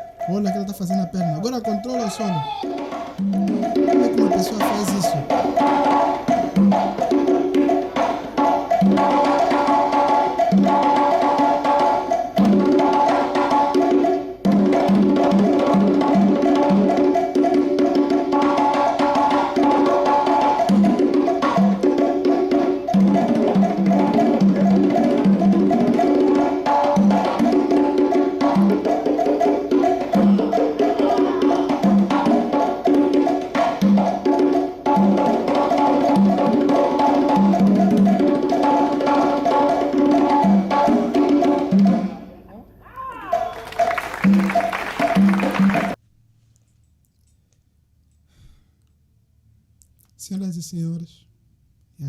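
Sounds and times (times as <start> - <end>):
conga drum strokes: 0.0 - 42.6, 43.2 - 46.0.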